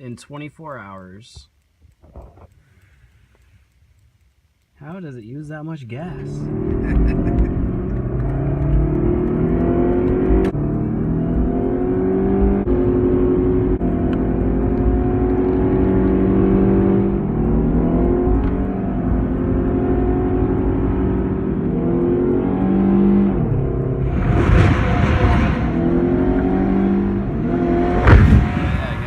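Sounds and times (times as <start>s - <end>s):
car engine accelerating: 6.2s - 29.0s.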